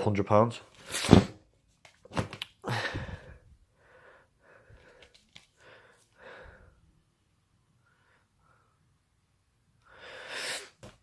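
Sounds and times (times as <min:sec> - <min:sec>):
person breathing and sniffing: 0:02.6 - 0:06.8, 0:09.9 - 0:11.0.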